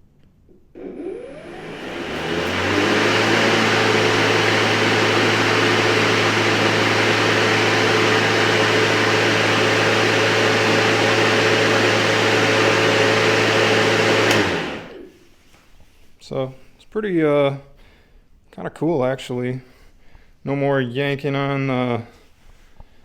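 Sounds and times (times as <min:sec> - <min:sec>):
electric lawn mower humming: 0:00.8 - 0:15.1.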